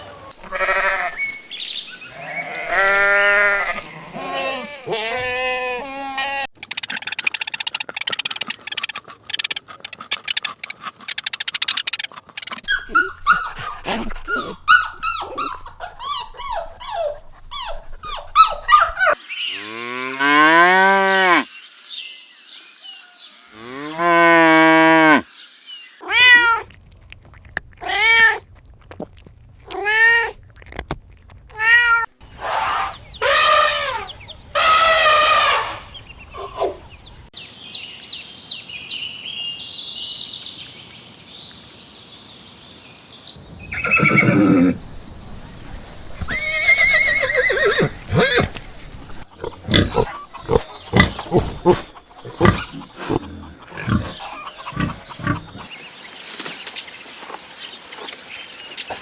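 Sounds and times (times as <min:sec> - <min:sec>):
quick barks: 0:12.6 - 0:19.2, 0:48.0 - 0:55.7
long low animal calls: 0:12.7 - 0:19.2, 0:43.7 - 0:55.7.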